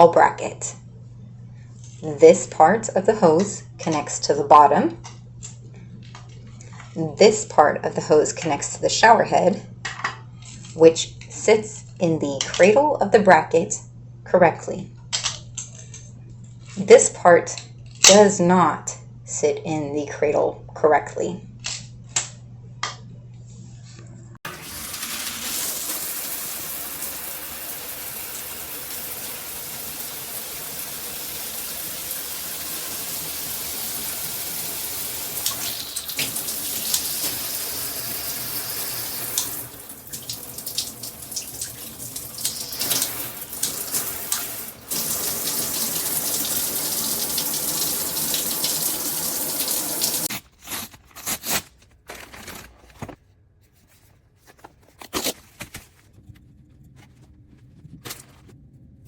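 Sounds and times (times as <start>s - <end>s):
water spraying from shower head: 24.5s - 50.3s.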